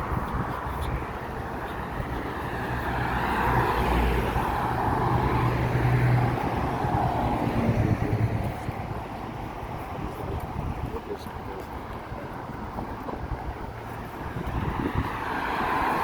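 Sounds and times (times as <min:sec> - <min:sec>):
vehicle passing by: 0:01.9 - 0:09.0.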